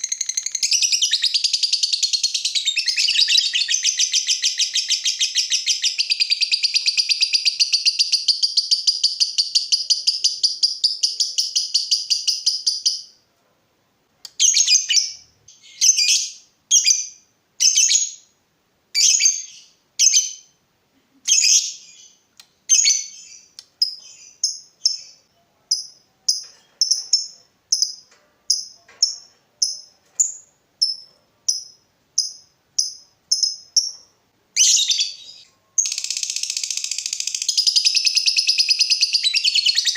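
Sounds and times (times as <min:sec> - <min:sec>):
lovebird chirping bursts: 0:00.0 - 0:13.1, 0:21.3 - 0:39.9
lovebird chattering trill: 0:34.6 - 0:39.9.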